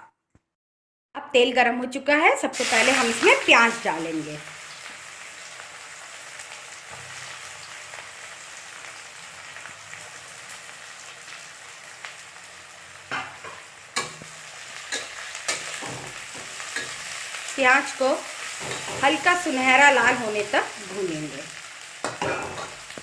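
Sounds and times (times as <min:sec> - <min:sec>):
onions sizzling in oil: 0:02.6 - 0:23.0.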